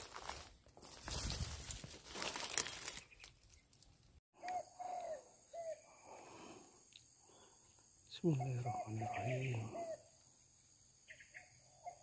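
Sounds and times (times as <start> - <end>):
footsteps rustling through undergrowth: 0.0 - 4.1.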